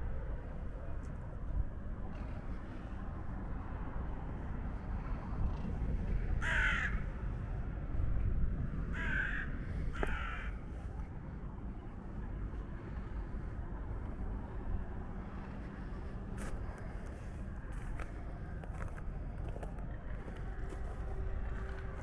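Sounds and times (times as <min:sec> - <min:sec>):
steady low rumble: 0:00.0 - 0:22.0
bird harsh caw-like calls: 0:06.4 - 0:07.1, 0:08.9 - 0:10.6.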